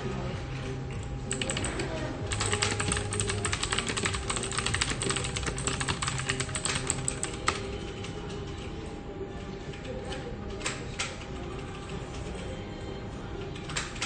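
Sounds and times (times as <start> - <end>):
office background hum: 0.0 - 14.0
fast typing on keyboard: 1.3 - 8.6.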